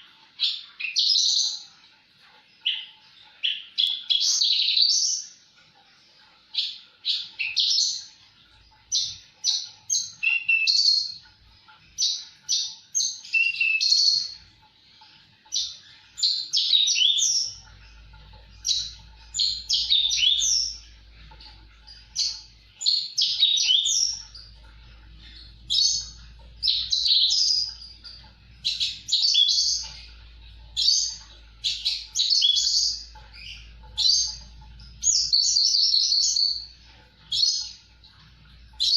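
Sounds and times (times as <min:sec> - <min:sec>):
lark singing high chirps: 0:08.9 - 0:11.2, 0:15.5 - 0:24.6, 0:25.2 - 0:37.8
faint low hum: 0:17.2 - 0:38.9.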